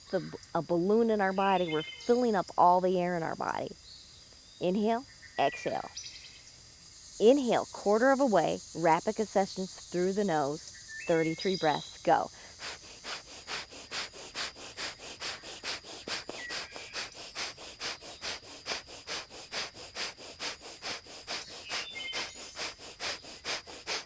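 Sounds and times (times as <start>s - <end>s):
forceful nasal exhalations: 11.9s - 24.0s.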